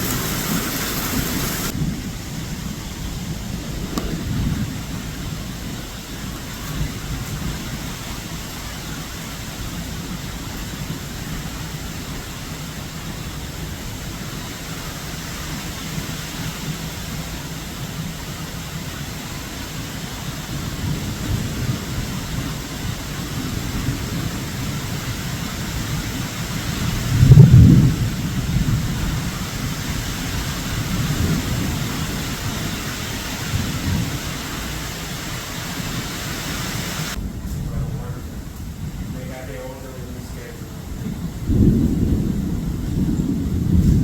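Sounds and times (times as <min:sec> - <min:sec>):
rain: 0:00.0 - 0:44.0
wind: 0:00.0 - 0:44.0
loud low rumble: 0:37.1 - 0:44.0.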